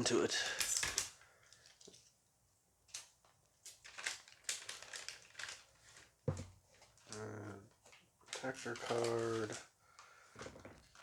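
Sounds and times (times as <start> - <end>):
foil wrapper crinkling: 2.9 - 6.2, 8.3 - 9.7.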